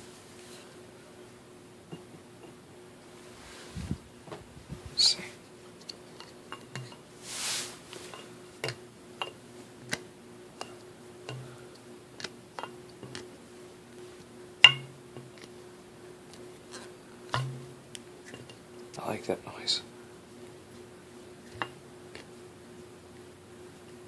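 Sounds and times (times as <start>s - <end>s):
brief scraping hiss: 7.2s - 7.8s
wine glasses clinking: 14.6s - 14.9s.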